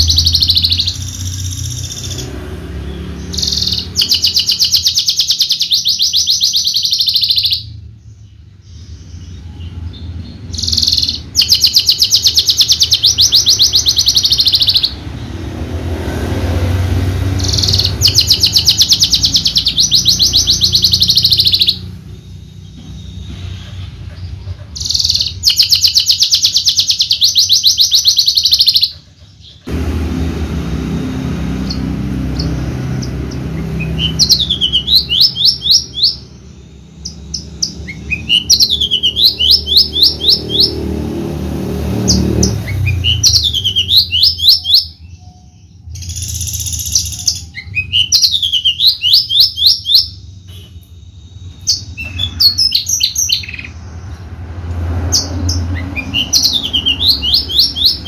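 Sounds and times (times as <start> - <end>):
bush lark singing: 0.0 - 15.2, 17.3 - 29.7, 31.2 - 41.0, 42.0 - 54.1, 55.1 - 58.0.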